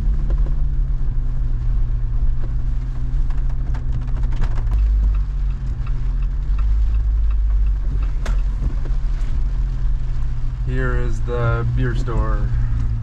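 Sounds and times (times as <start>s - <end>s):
engine and road drone: 0.0s - 13.0s
light evenly spaced ticks: 2.4s - 10.8s.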